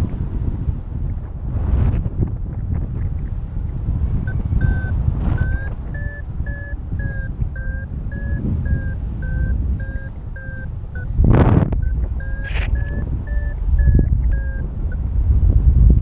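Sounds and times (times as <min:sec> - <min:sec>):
wind on microphone: 0:00.0 - 0:16.0
variometer beeping: 0:04.2 - 0:15.1.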